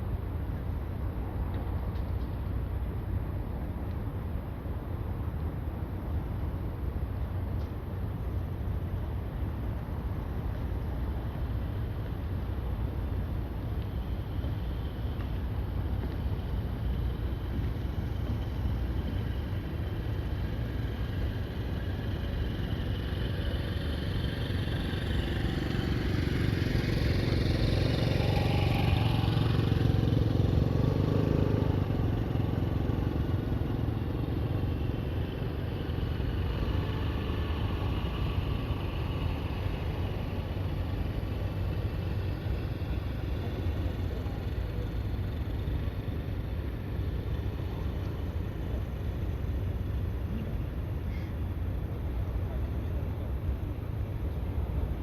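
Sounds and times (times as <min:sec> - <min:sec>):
low background rumble: 0:00.0 - 0:55.0
vehicle passing by: 0:20.1 - 0:49.0.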